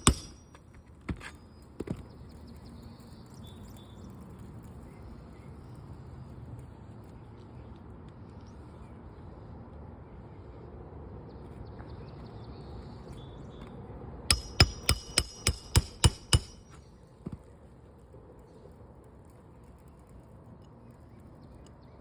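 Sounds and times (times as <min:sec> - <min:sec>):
hammer striking metal: 0:00.0 - 0:00.6, 0:14.3 - 0:16.8.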